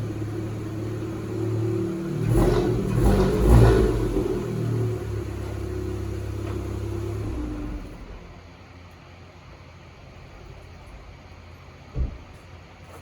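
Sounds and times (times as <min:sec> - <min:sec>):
engine idling and revving: 0:00.0 - 0:08.4.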